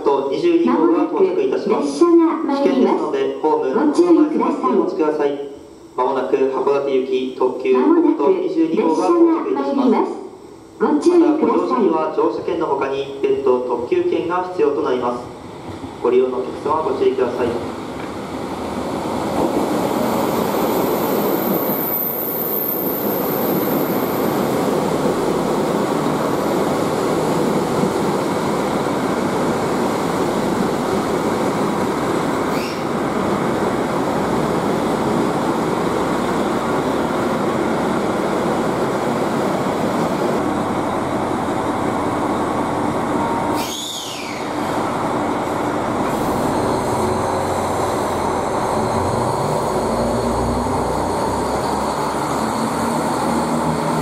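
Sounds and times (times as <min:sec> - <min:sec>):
diesel train rumble: 0:12.4 - 0:54.0
wheel or brake squeals: 0:43.6 - 0:44.5.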